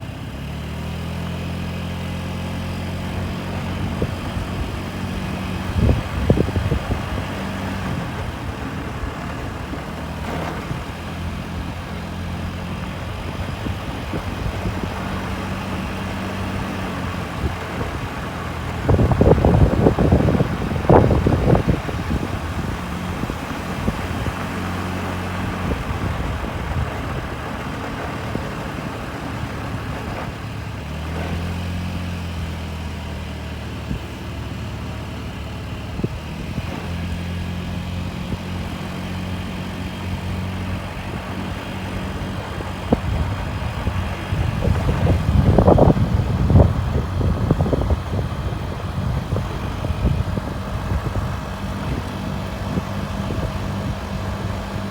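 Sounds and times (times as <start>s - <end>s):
scooter engine running: 0.0s - 54.9s.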